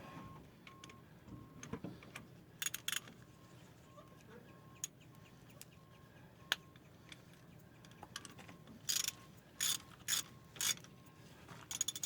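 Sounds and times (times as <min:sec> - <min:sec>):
ratchet wrench clicking: 0:02.6 - 0:03.1, 0:08.8 - 0:10.8, 0:11.7 - 0:12.0.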